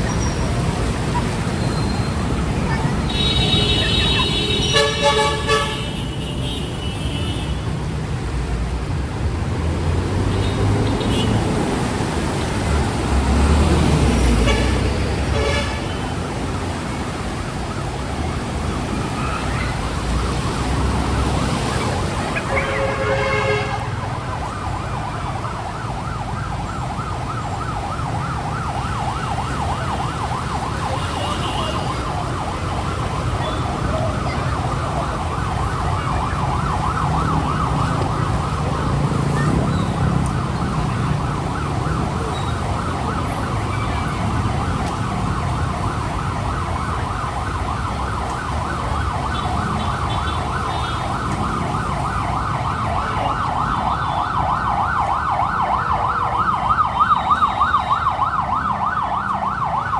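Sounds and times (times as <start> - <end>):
emergency siren wailing: 0.0 - 5.7, 7.6 - 59.9
street traffic rumble: 0.0 - 59.9.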